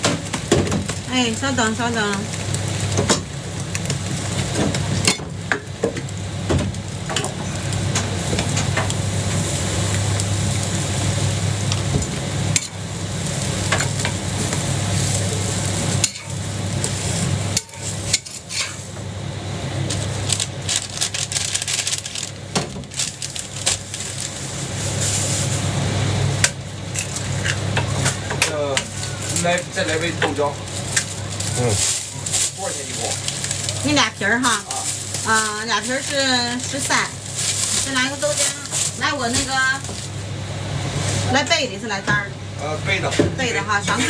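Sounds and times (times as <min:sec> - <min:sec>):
batter sizzling on griddle: 0:00.0 - 0:44.0
metal spatula scraping and clicking: 0:17.6 - 0:18.8.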